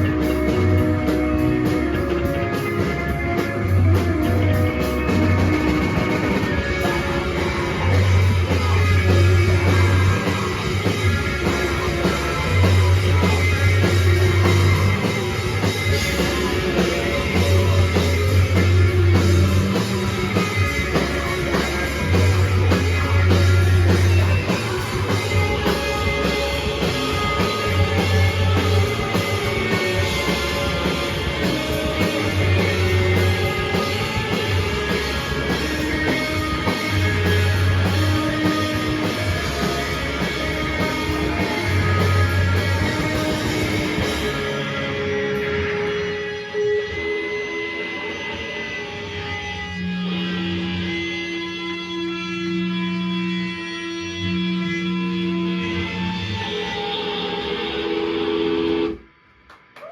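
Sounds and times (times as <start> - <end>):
drum kit: 0.0 - 47.0
bass guitar long low notes: 0.0 - 58.9
guitars: 0.0 - 59.1.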